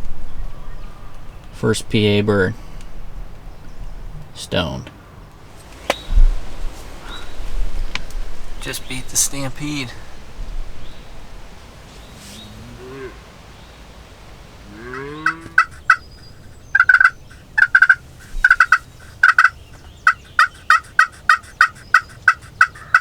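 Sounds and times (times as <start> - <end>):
turkey yelping: 14.6 - 23.0.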